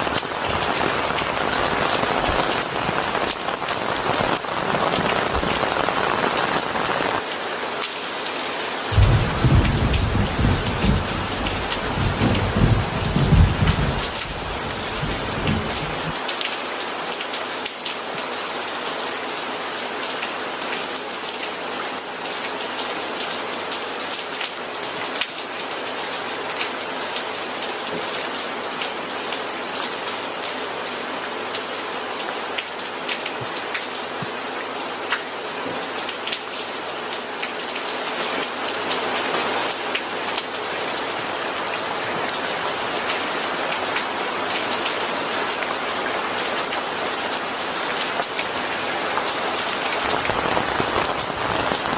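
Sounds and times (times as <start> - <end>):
rain pattering: 0.0 - 51.9
thunder rumbling: 8.9 - 16.2.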